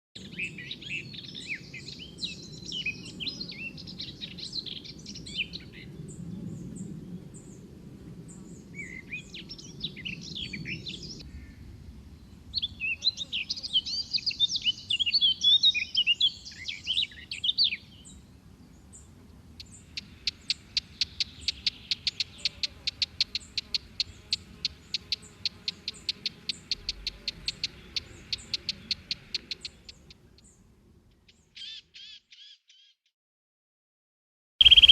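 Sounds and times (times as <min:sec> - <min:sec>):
songbirds warbling: 0:00.2 - 0:07.7, 0:08.3 - 0:33.0, 0:34.6 - 0:34.9
fast repeated sharp bird notes: 0:19.9 - 0:30.2, 0:34.6 - 0:34.9.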